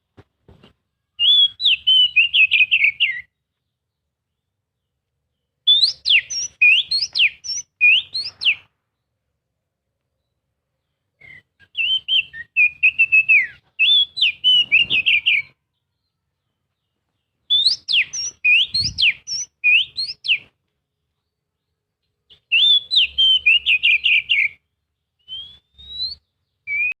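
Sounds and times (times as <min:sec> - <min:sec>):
bird singing whistled trills: 0:01.2 - 0:03.4, 0:05.6 - 0:08.7, 0:11.2 - 0:16.2, 0:17.5 - 0:20.5, 0:22.3 - 0:27.0.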